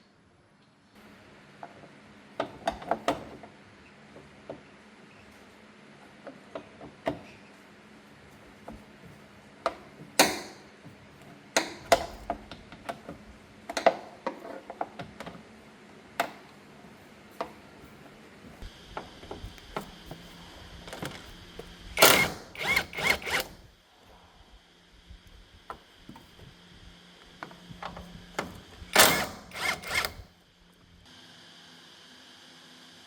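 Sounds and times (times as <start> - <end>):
hand tools clicking and knocking: 22.0 - 23.6, 28.4 - 30.2.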